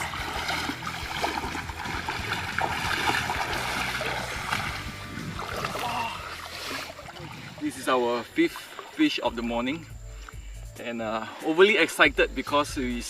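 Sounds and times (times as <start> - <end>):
water splashes: 0.0 - 9.5
stream water flowing: 0.0 - 10.4
background music with low notes: 0.0 - 13.0.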